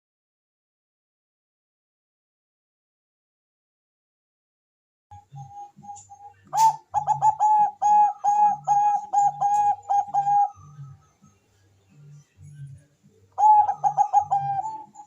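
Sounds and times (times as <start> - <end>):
dove cooing: 5.2 - 11.0, 13.3 - 15.0.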